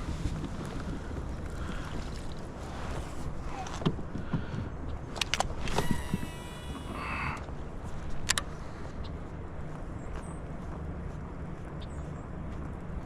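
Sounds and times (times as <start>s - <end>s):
thin steady whine: 4.8s - 10.0s.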